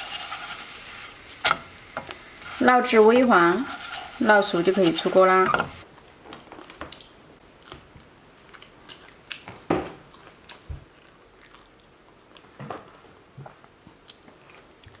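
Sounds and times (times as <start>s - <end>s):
crunchy chewing: 10.1s - 12.4s.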